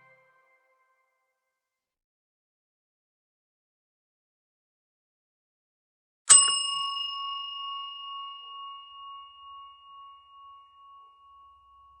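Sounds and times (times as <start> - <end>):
bell-like chime ringing: 6.3 - 12.0.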